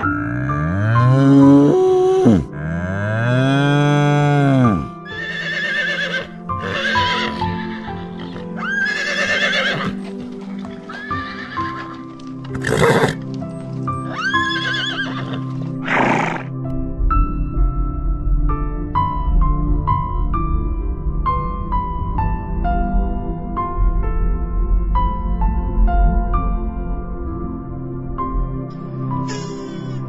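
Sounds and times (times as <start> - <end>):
cow mooing: 0.0 - 5.0
piano notes: 0.0 - 5.1
horse neighing: 0.0 - 10.0, 10.9 - 13.2, 14.1 - 16.5
soft background music: 0.0 - 30.0
horse snorting: 12.5 - 13.2.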